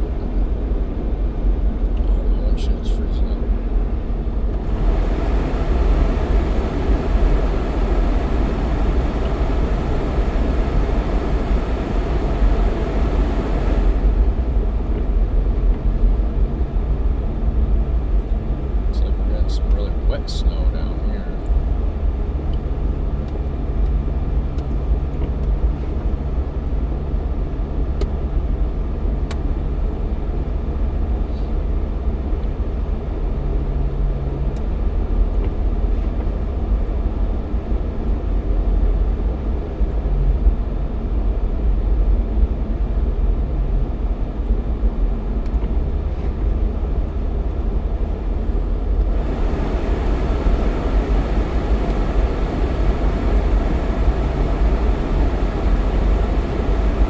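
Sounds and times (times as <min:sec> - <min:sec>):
car engine and road rumble: 0:00.0 - 0:57.0
faint hum: 0:04.4 - 0:14.7, 0:18.6 - 0:23.7, 0:47.6 - 0:57.0.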